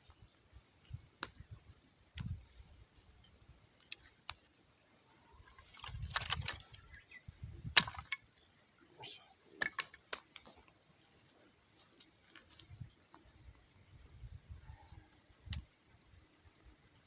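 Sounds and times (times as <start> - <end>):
sharp clicks and light knocks: 9.6 - 10.8.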